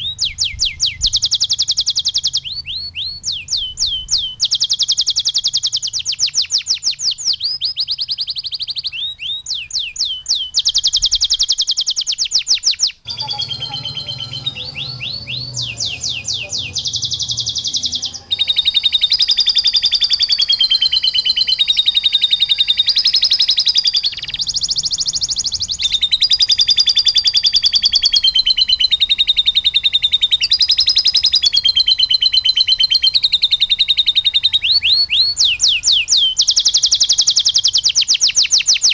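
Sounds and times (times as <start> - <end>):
canary singing rapid trills: 0.0 - 38.9.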